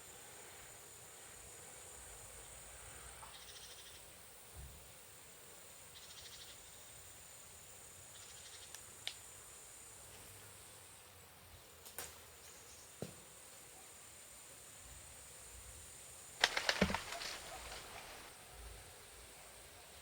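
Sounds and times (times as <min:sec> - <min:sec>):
insects trilling: 0:00.0 - 0:04.4, 0:05.0 - 0:20.0
rasping insect chirps: 0:05.9 - 0:06.9
faint clicks: 0:16.4 - 0:18.3.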